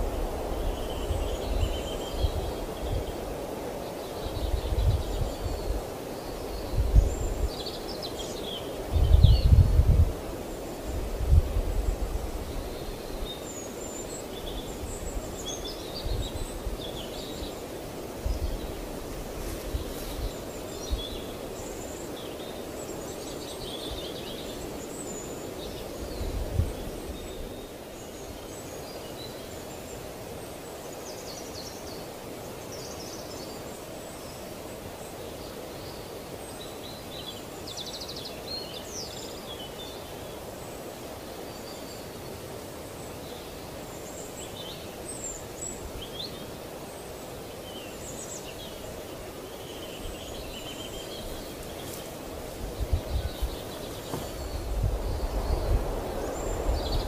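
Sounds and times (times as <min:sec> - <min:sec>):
low background noise: 0:00.0 - 0:57.0
birds chirping and trilling: 0:11.8 - 0:57.0
low thump: 0:54.0 - 0:54.6.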